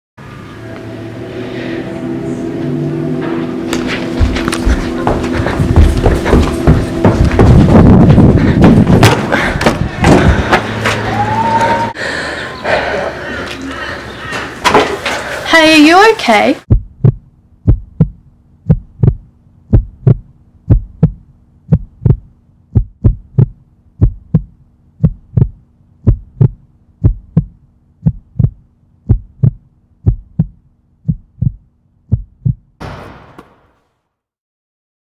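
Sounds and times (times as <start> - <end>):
low hum: 0.2 - 14.3, 16.6 - 33.2
heartbeat double thump: 5.6 - 9.2, 16.7 - 32.8.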